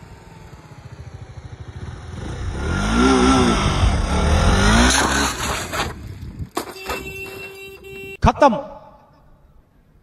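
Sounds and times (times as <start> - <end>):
motorcycle engine accelerating hard: 0.0 - 5.7.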